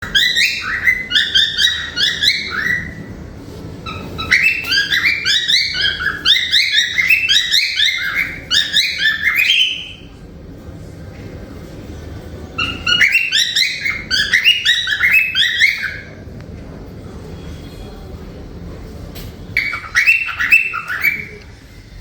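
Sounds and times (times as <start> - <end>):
cockatiel chirping: 0.0 - 3.0, 3.8 - 10.1, 12.6 - 16.1, 19.6 - 21.4.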